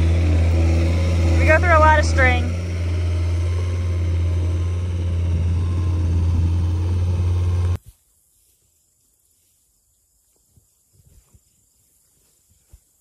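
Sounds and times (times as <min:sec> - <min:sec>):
tractor engine droning: 0:00.0 - 0:07.8.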